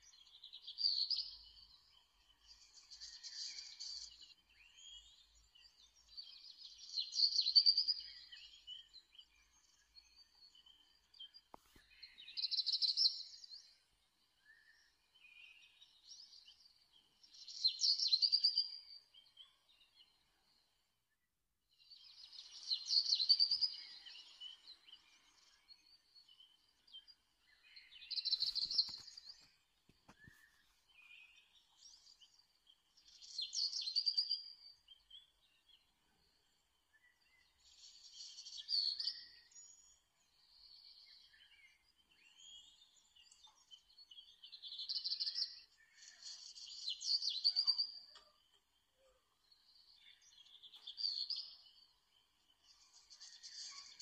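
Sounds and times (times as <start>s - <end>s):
birds twittering: 21.9s - 35.8s.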